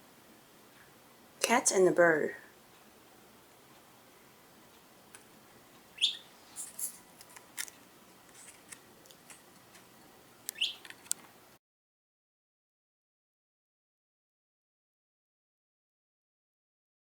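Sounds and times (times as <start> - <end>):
budgerigar chirping: 5.9 - 6.4, 10.5 - 10.9
faint sharp clicks: 8.7 - 11.3.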